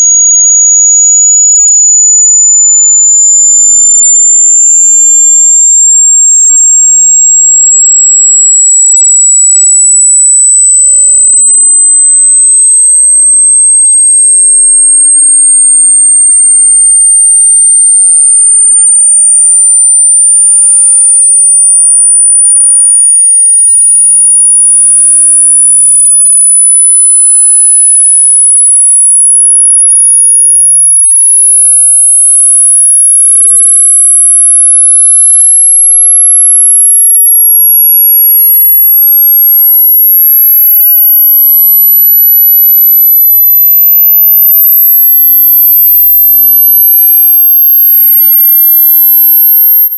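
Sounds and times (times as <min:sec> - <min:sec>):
high-pitched electronic tone rising: 0:00.0 - 0:08.4, 0:13.9 - 0:22.4, 0:33.0 - 0:49.9.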